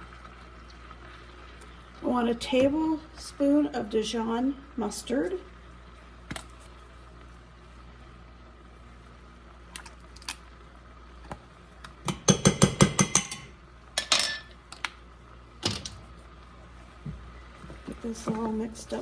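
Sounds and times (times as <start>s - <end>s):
metal utensil clinking on cookware: 12.9s - 14.5s.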